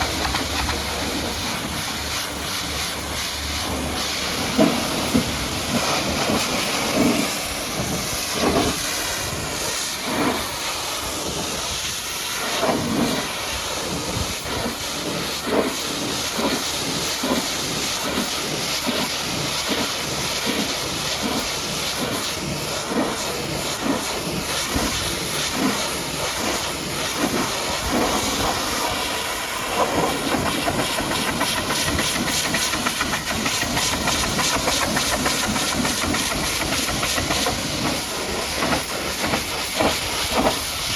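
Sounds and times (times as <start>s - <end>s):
pressure washer water jet spraying: 0.0s - 40.9s.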